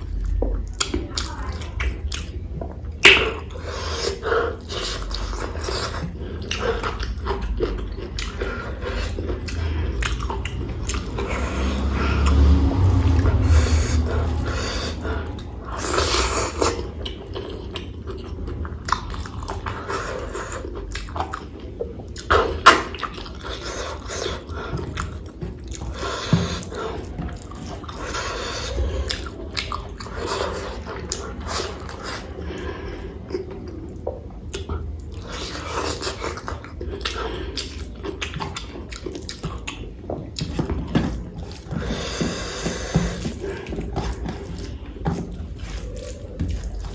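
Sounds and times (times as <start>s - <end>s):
person chewing food: 0.0s - 46.9s
small crunches and smacks: 34.5s - 46.9s.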